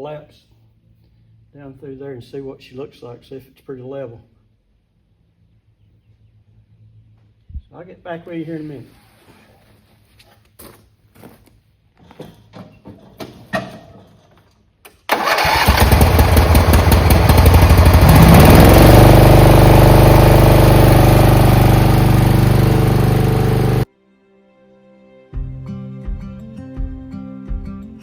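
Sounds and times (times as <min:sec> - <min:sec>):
mower engine starting and running: 0:15.1 - 0:23.9.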